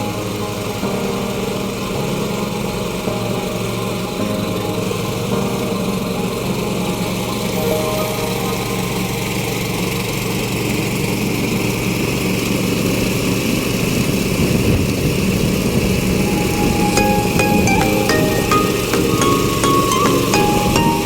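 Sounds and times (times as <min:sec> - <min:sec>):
background music: 0:00.0 - 0:11.2, 0:16.1 - 0:21.0.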